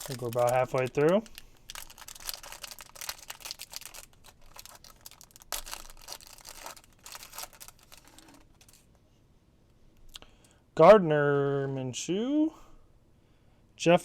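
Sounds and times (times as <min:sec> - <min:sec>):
card pack wrapper crinkling and tearing: 0:00.0 - 0:08.9.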